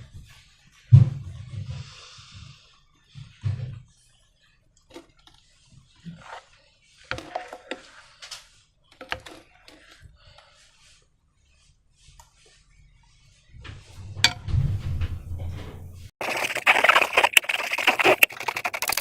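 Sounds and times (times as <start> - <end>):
sticky slime squelching: 16.2 - 19.0.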